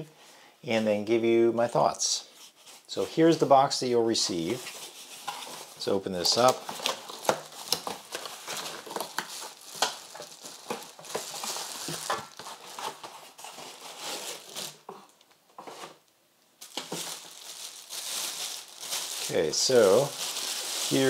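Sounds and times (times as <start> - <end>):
packaging crinkling and rustling: 4.4 - 21.0.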